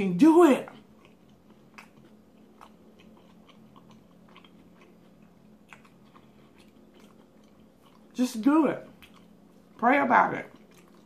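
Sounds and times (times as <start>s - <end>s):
person chewing food: 0.5s - 11.0s.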